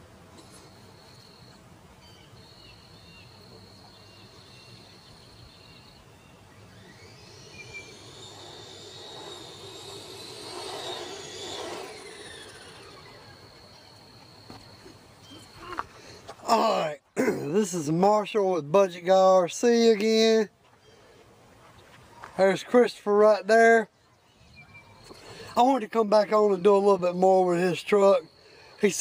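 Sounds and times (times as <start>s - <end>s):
high insect drone: 0.4s - 18.0s, 25.0s - 29.0s
vehicle passing: 7.9s - 13.2s.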